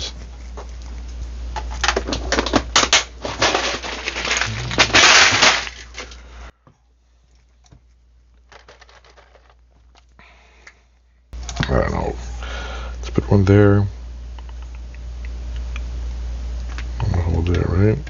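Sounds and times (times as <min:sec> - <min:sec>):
rustling burst: 0:03.3 - 0:06.1.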